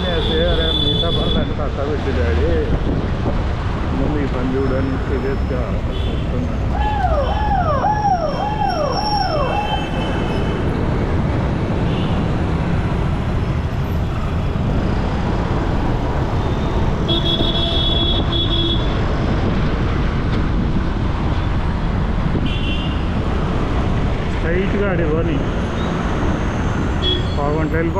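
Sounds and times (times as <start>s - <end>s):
city road traffic: 0.0s - 27.9s
falling electronic chirp: 7.2s - 10.2s
vehicle horn: 17.0s - 19.0s, 22.4s - 23.0s, 27.0s - 27.4s.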